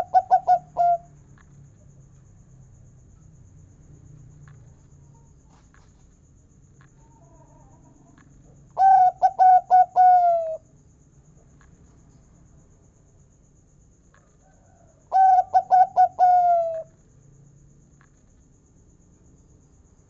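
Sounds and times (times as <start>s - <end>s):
dove cooing: 0.0s - 1.1s, 8.8s - 10.6s, 15.1s - 16.9s.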